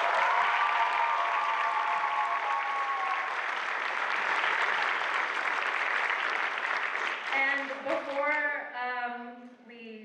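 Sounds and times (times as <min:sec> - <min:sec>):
person whooping: 0:00.0 - 0:03.4
audience applauding: 0:00.0 - 0:08.2.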